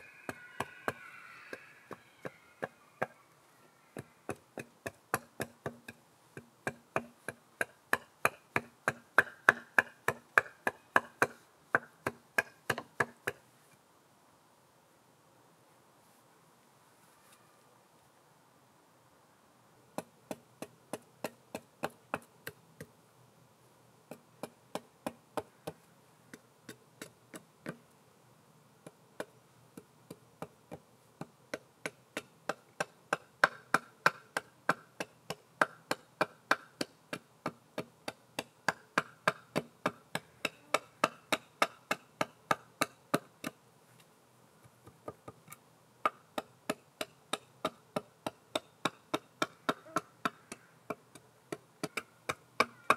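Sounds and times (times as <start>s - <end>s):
hand tool tapping wood: 4.0s - 13.4s, 28.8s - 43.6s, 44.6s - 52.9s.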